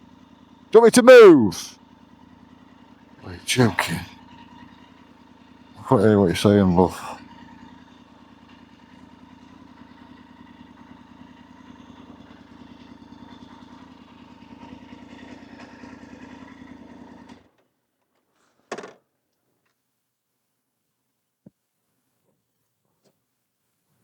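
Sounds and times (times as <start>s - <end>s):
motorcycle engine idling: 0.0s - 0.7s, 1.7s - 3.2s, 4.1s - 17.3s.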